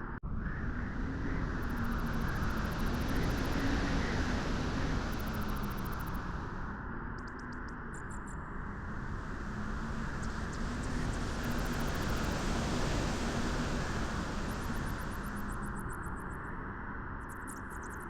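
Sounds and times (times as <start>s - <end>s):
wind blowing: 8.6s - 16.0s.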